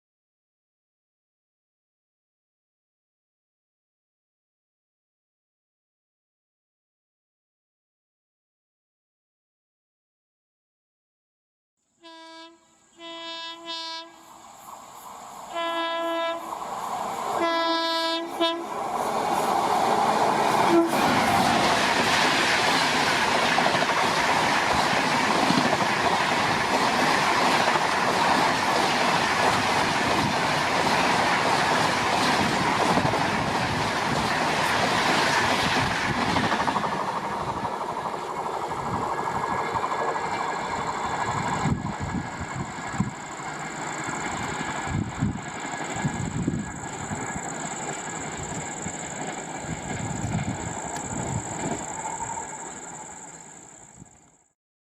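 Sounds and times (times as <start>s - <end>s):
locomotive horn blasts: 12.0s - 14.3s, 15.5s - 16.5s, 17.4s - 18.7s, 20.7s - 21.0s
train rushing past: 13.7s - 54.1s
wheels clattering on rail: 19.0s - 53.3s.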